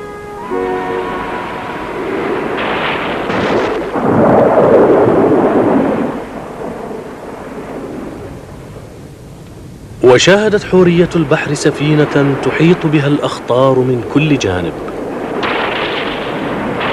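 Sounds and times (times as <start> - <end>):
storm noise: 0.0 - 16.9
rumbling thunderclap: 1.4 - 9.1, 14.7 - 16.9.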